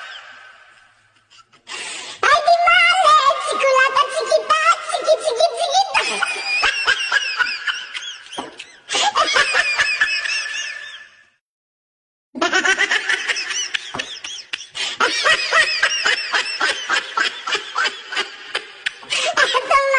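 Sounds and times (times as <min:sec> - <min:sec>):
high-pitched giggling laughter: 0:05.5 - 0:11.1, 0:12.4 - 0:19.9.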